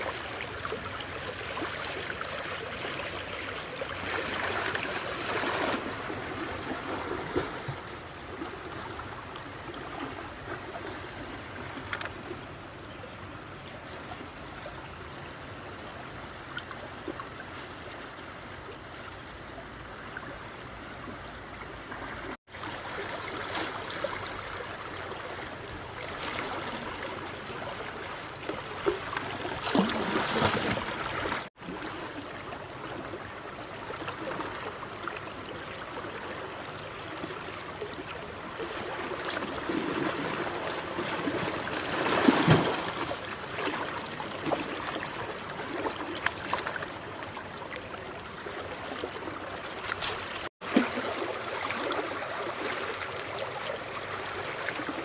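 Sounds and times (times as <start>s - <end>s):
running water splashing: 22.5s - 31.5s, 38.6s - 55.0s.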